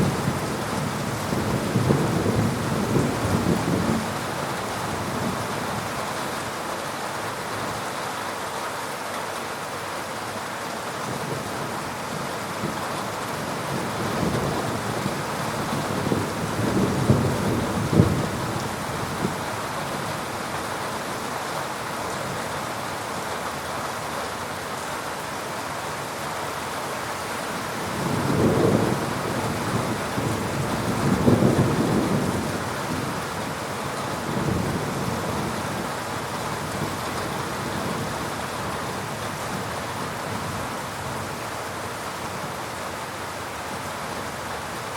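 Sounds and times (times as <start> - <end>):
low rolling thunder rumbles: 0.0 - 5.9, 13.7 - 19.5, 27.8 - 39.7
heavy rain falling: 0.0 - 44.9.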